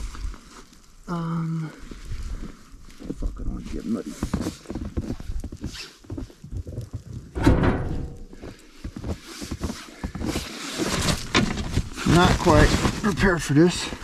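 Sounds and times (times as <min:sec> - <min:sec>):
loud thump: 0:07.4 - 0:08.4
gear rummaged in a bag: 0:08.9 - 0:14.0.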